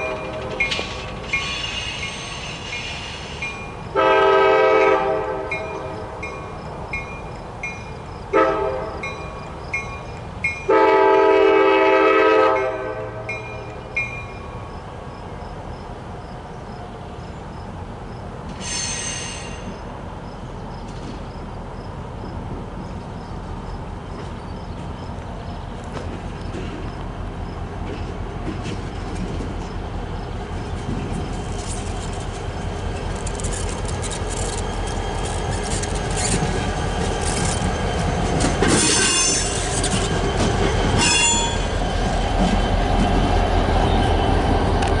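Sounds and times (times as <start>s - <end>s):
locomotive engine rumbling: 0.0s - 45.0s
crossing bell dinging: 3.4s - 3.9s, 5.5s - 8.2s, 8.9s - 10.8s, 12.6s - 14.7s, 38.8s - 41.9s
locomotive horn blasts: 3.9s - 6.1s, 8.3s - 9.1s, 10.7s - 13.7s
high squeal: 18.6s - 19.8s, 41.0s - 41.9s.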